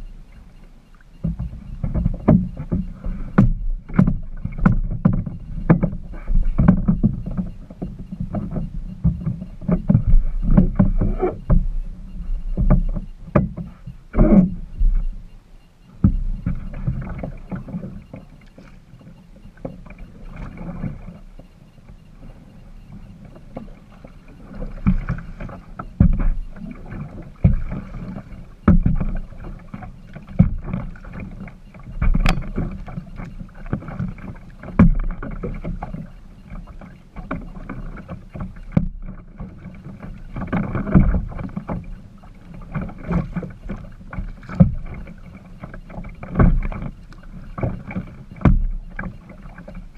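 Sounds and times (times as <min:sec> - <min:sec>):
paddle splashing in water: 0:00.0 - 0:49.9
knocks against boat: 0:01.2 - 0:11.8, 0:12.4 - 0:15.2, 0:16.0 - 0:18.8, 0:24.8 - 0:36.1, 0:37.2 - 0:39.2, 0:40.3 - 0:42.0, 0:47.6 - 0:49.8.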